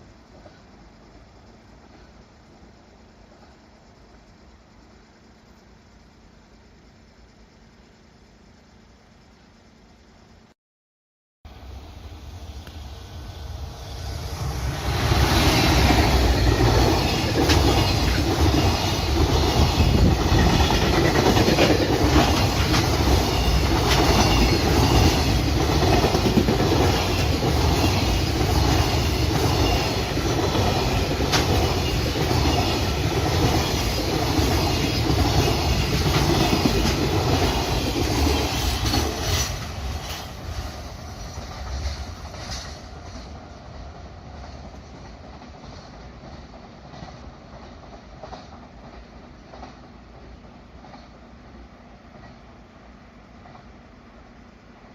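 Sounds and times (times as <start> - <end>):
train wheels clattering over rails: 14.7 - 51.4.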